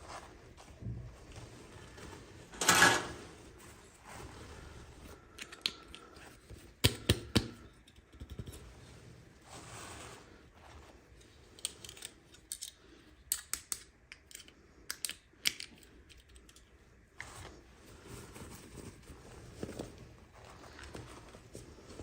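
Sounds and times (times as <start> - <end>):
plastic pieces clicking: 11.6 - 16.7.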